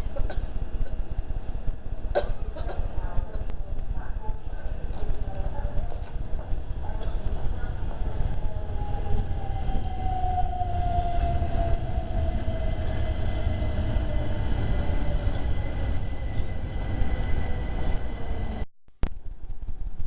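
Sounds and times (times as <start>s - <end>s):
train rumble: 0.0s - 18.7s
train motor whine: 8.6s - 18.6s.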